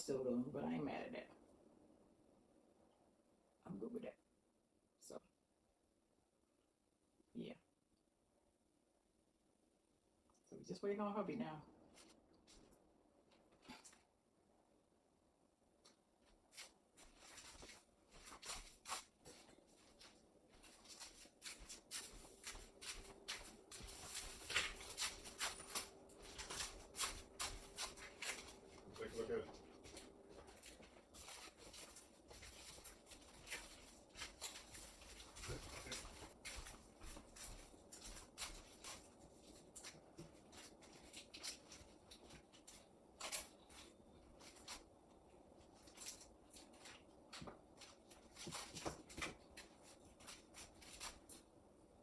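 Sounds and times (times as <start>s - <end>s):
faint steady hum: 0.0s - 52.0s
soft rustling and handling: 11.8s - 14.3s, 15.6s - 52.0s
small clicks and shuffles: 15.8s - 51.6s.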